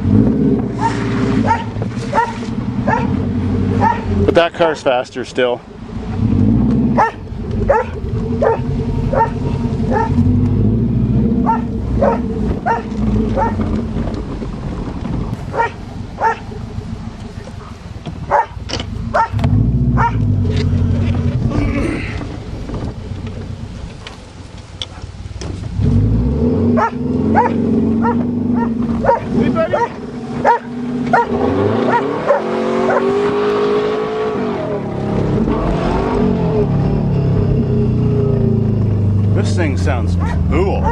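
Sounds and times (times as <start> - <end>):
car engine running: 0.0 - 40.9
dog barking: 0.8 - 3.2, 3.8 - 4.1, 7.0 - 10.2, 11.4 - 13.6, 15.5 - 16.5, 18.3 - 19.4, 20.0 - 20.2, 26.8 - 33.1, 40.2 - 40.9.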